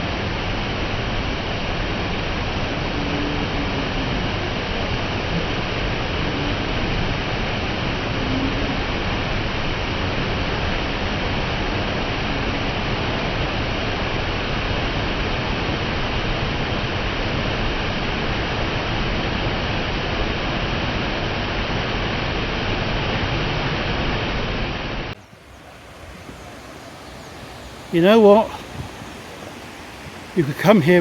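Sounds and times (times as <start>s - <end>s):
waterfall rushing: 0.2s - 8.2s, 25.2s - 31.0s.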